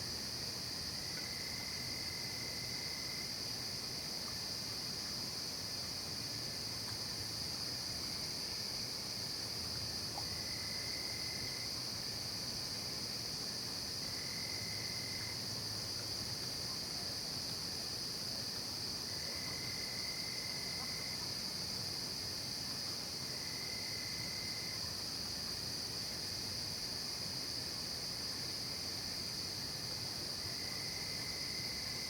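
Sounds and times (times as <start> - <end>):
lower insect trill: 5.8 - 22.6, 23.4 - 32.0.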